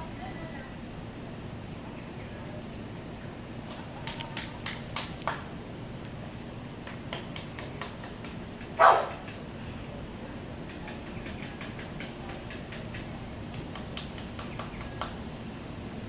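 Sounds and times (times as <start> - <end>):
dog barking: 8.8 - 9.2.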